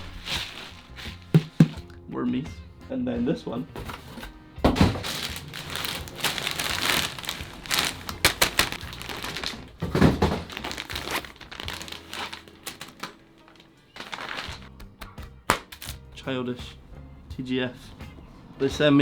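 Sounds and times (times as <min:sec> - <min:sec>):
package wrapping crinkling: 0:00.0 - 0:01.9, 0:03.8 - 0:16.0.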